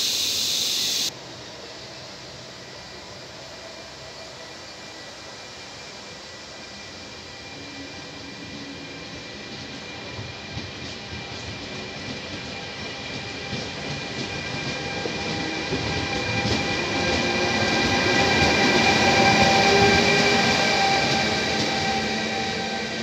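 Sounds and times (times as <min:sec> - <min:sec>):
steady whining tones: 0:00.0 - 0:01.1
train wheels rumbling on rails: 0:05.4 - 0:23.0.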